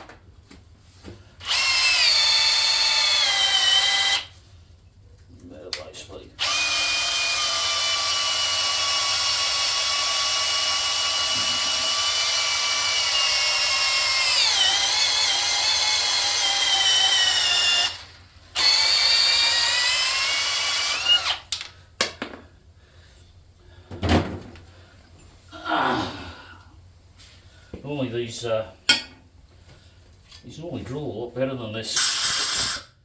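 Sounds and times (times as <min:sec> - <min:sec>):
battery drill whining: 0:01.4 - 0:04.3, 0:06.4 - 0:21.5, 0:32.0 - 0:33.0.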